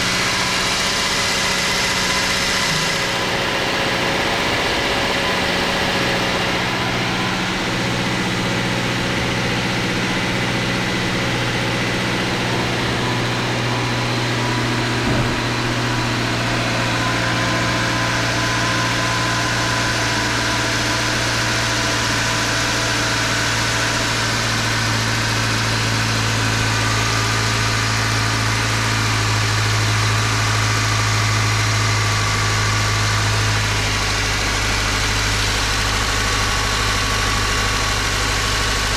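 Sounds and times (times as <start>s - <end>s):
car engine idling: 0.0s - 38.9s
short engine knock: 12.6s - 16.4s.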